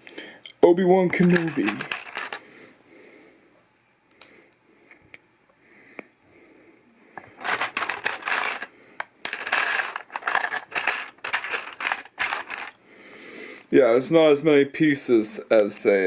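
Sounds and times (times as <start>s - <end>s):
plastic pieces clicking and rattling: 1.2s - 2.4s, 7.3s - 12.8s.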